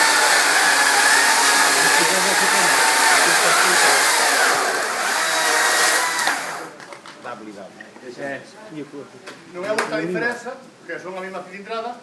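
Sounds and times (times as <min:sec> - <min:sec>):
cordless chainsaw whining: 0:00.0 - 0:06.8.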